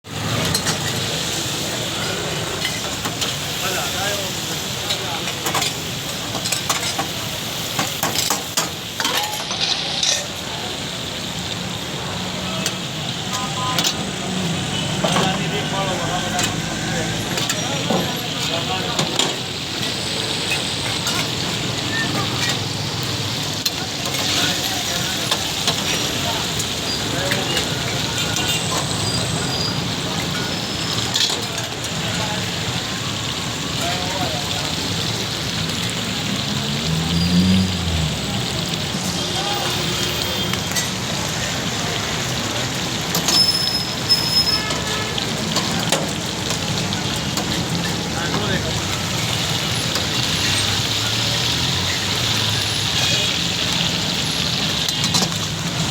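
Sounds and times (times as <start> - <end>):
chicken sizzling in oil: 0.0 - 55.9
street traffic: 0.0 - 55.9
sharp clicks of frying: 0.1 - 55.9.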